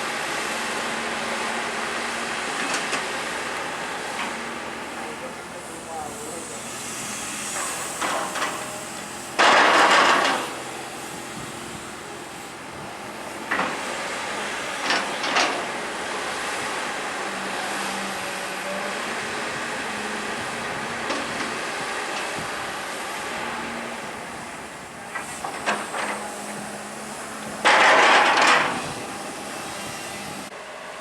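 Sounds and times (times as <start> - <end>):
excavator machine noise: 0.0 - 31.0
short metallic clanks: 27.6 - 28.9.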